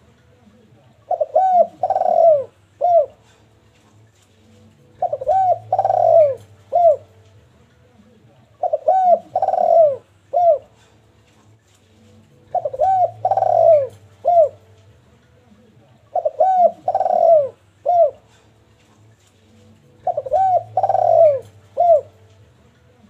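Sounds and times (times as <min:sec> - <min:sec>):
dove cooing: 0:01.0 - 0:03.4, 0:04.9 - 0:07.2, 0:08.6 - 0:11.0, 0:12.4 - 0:14.7, 0:16.1 - 0:18.5, 0:19.8 - 0:22.3.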